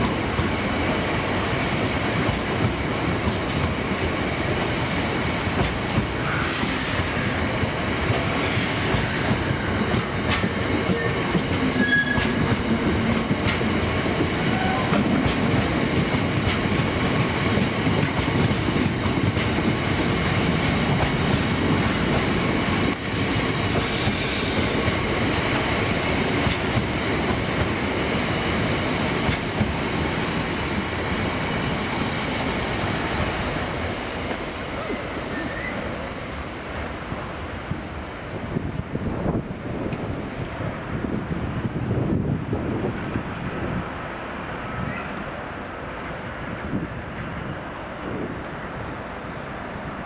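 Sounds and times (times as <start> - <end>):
freight train wheels clattering: 2.0 - 32.0.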